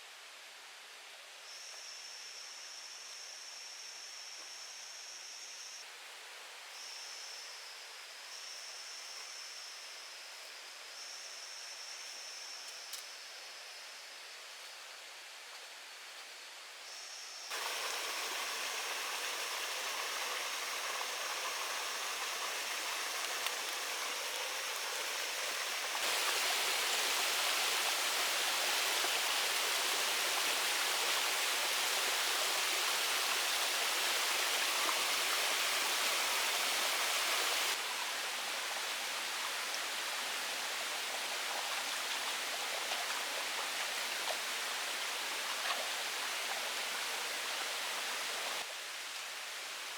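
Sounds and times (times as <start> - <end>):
rush of running water: 17.5 - 49.9.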